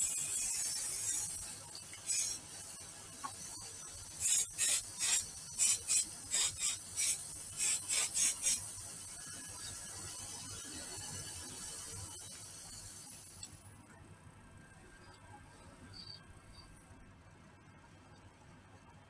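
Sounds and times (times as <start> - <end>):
aerosol spray can hissing: 0.0 - 13.5.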